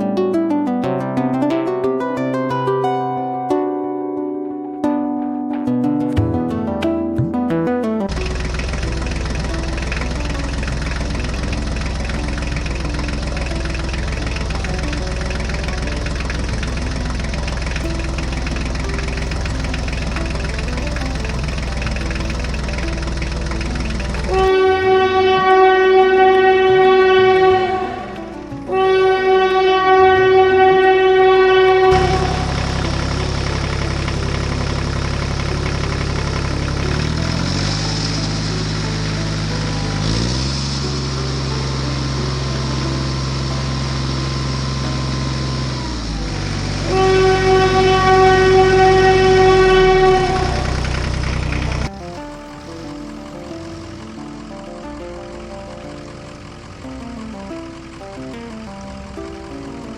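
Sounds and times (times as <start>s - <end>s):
vehicle engine rumbling: 8.1s - 59.9s
loud horn blast: 24.2s - 40.8s, 45.8s - 51.9s.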